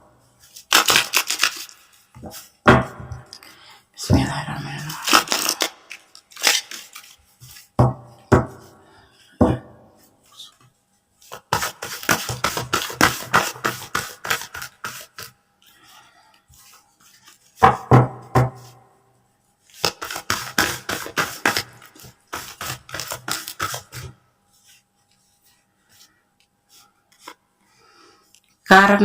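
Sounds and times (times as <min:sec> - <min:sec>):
cards being shuffled: 0:00.5 - 0:02.5, 0:04.9 - 0:07.7, 0:11.3 - 0:15.4, 0:19.7 - 0:25.4.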